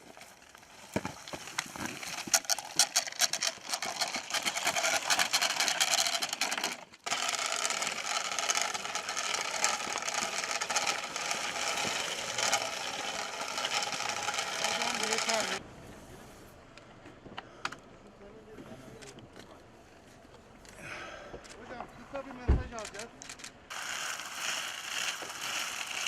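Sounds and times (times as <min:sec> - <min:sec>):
dense rattling and crackling: 0:00.0 - 0:15.6, 0:21.7 - 0:26.0.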